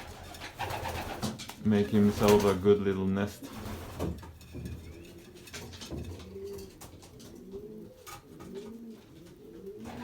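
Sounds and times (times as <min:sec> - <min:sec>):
pigeons cooing: 0:04.6 - 0:10.0.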